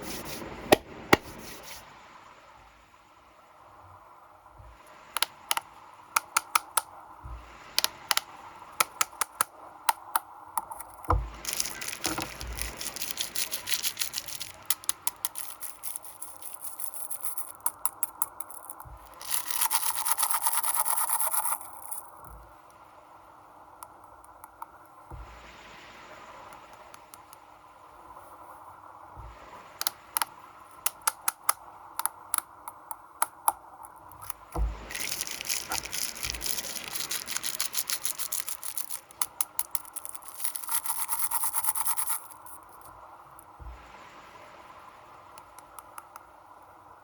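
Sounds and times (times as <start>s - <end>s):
packaging crinkling: 10.8s - 17.6s, 19.0s - 21.9s, 34.3s - 42.6s
wrapper clicks and taps: 11.4s - 18.1s, 34.9s - 42.3s.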